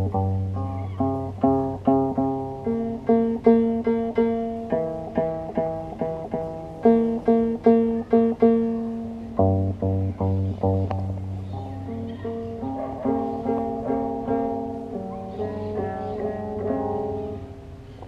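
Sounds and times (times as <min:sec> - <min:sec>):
plucked harp notes: 0:00.0 - 0:12.8.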